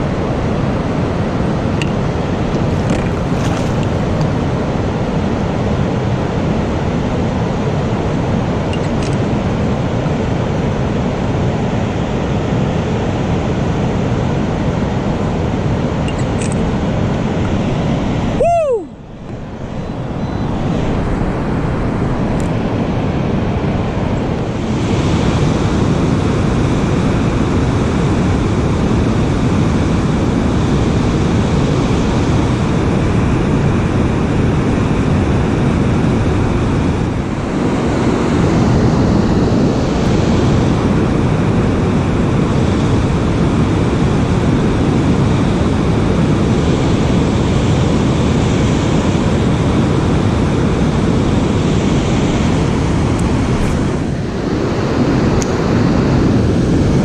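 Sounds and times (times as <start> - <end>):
loud rushing noise: 17.6 - 26.4, 51.4 - 57.0.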